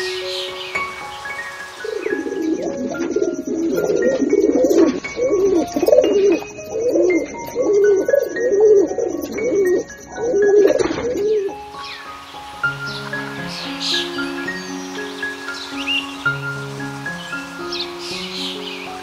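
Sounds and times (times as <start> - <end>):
soft background music: 0.0 - 19.0
pigeons cooing: 0.9 - 12.2.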